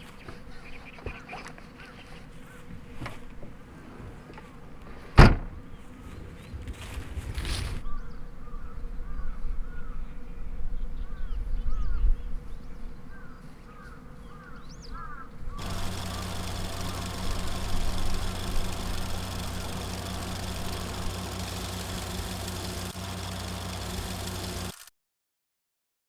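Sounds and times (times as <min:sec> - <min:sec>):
small birds chirping: 0:00.0 - 0:02.8, 0:10.8 - 0:24.6
car engine idling: 0:15.6 - 0:24.8.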